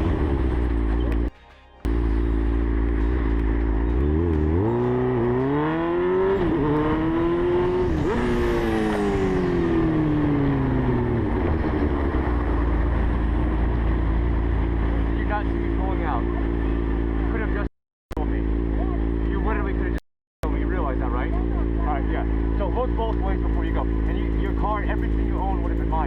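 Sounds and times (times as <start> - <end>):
motorcycle engine accelerating: 0.0 - 26.0
wind rumble: 6.4 - 15.0.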